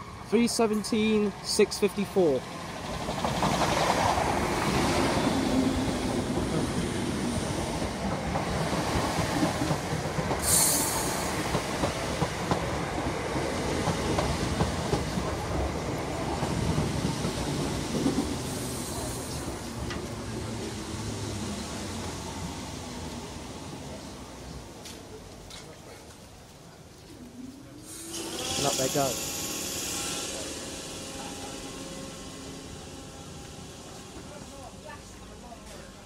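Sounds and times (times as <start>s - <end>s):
sharp hiss: 10.4s - 11.5s, 27.8s - 32.9s.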